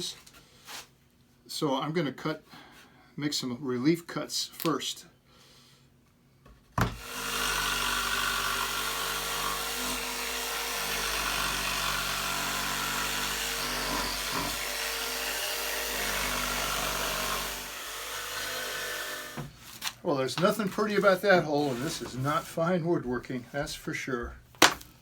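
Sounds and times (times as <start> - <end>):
electric jigsaw sawing wood: 6.8 - 19.5, 21.5 - 22.2.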